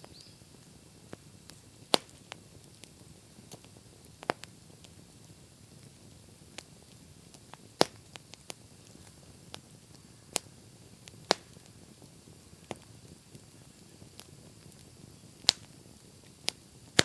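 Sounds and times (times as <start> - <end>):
campfire crackling and popping: 0.0 - 17.0
low steady hiss: 0.0 - 17.0.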